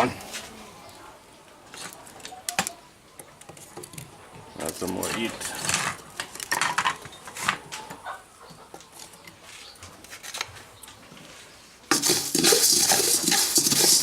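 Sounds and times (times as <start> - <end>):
loud steady hiss: 11.9 - 14.0
rice grains popping in a pan: 11.9 - 14.0.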